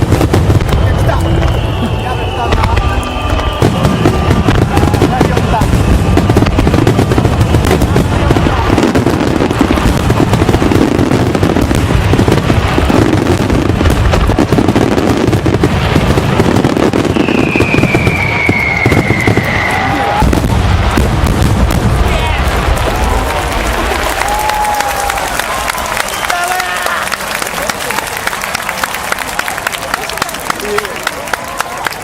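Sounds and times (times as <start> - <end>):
fireworks crackling and banging: 0.0 - 32.0
long falling whistle: 0.7 - 5.0, 16.9 - 20.2.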